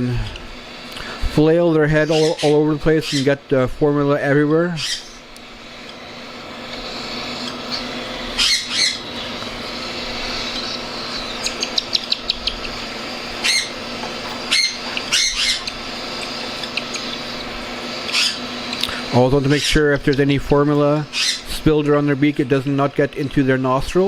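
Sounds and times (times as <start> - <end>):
steady hum: 0.0 - 24.0
cockatiel squawking: 2.0 - 3.3, 4.8 - 5.2, 7.0 - 9.3, 10.1 - 12.8, 13.4 - 13.8, 14.5 - 17.4, 18.1 - 18.4, 21.1 - 21.5.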